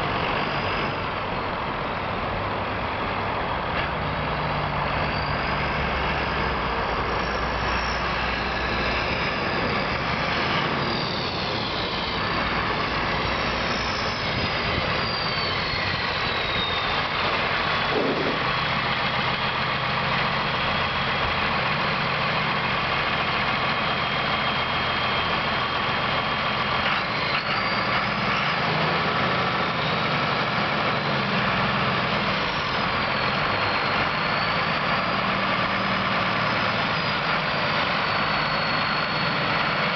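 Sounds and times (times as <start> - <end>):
high whine sliding down: 5.3 - 18.6
tractor diesel engine idling: 5.9 - 39.9.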